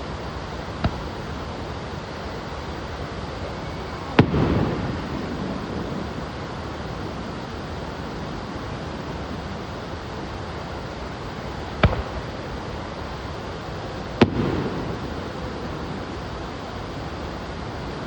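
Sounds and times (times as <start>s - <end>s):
steady rushing background noise: 0.0s - 18.0s
firework bang with crackling tail: 0.8s - 1.3s, 4.1s - 6.4s, 11.7s - 13.1s, 14.1s - 16.0s.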